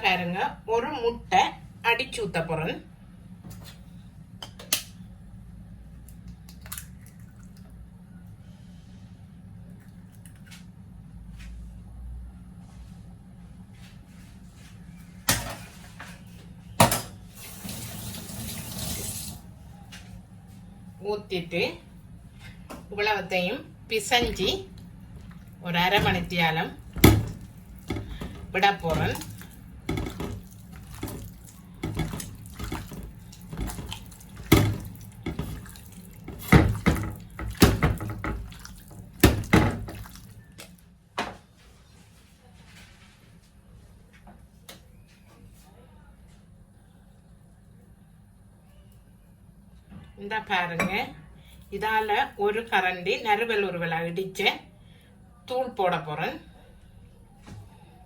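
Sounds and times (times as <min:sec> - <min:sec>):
hands squelching wet batter: 0:06.0 - 0:07.7, 0:24.0 - 0:40.8
water running from tap: 0:17.3 - 0:19.4, 0:24.2 - 0:40.7.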